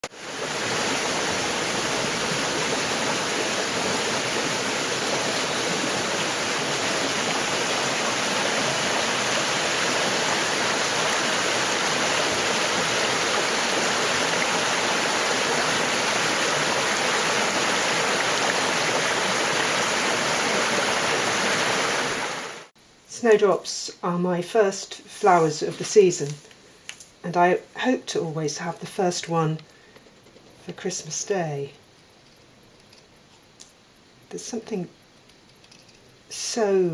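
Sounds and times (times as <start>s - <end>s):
river rushing over boulders: 0.0s - 22.7s.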